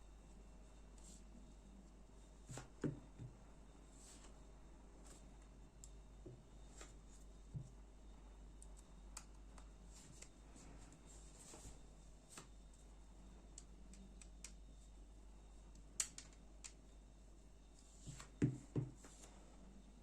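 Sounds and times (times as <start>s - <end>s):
small clicks and taps of tools: 13.5s - 14.6s, 15.7s - 16.8s.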